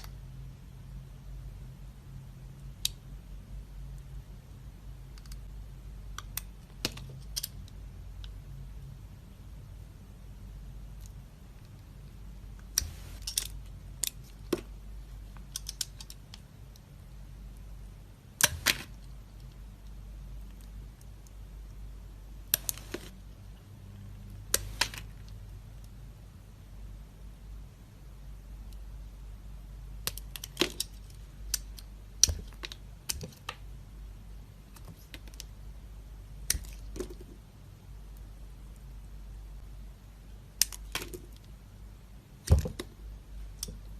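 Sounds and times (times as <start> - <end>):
low steady hum: 0.0 - 43.9.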